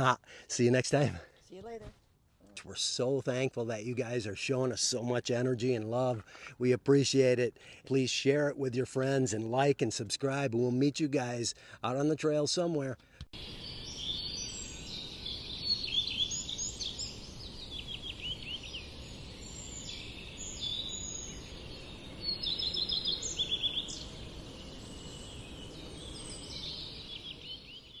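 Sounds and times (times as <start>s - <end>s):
songbirds chirping and singing: 13.4s - 28.0s.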